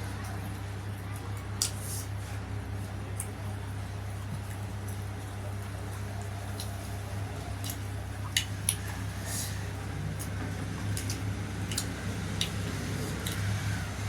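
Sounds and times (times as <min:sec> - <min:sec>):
steady low hum: 0:00.0 - 0:14.0
wet chewing and mouth smacks: 0:07.6 - 0:09.1, 0:10.1 - 0:13.5.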